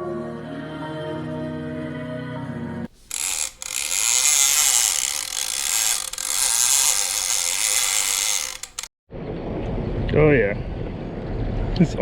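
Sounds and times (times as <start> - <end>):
fishing reel whirring and clicking: 2.9 - 8.9.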